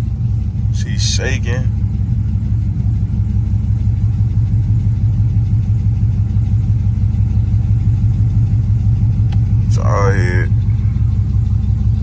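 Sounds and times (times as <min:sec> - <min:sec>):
engine misfiring with low rumble: 0:00.0 - 0:12.0.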